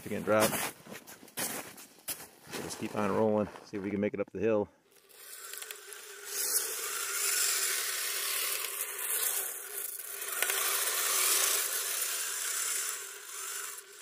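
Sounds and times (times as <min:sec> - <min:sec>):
toy vehicle motors whining: 0:04.8 - 0:14.0.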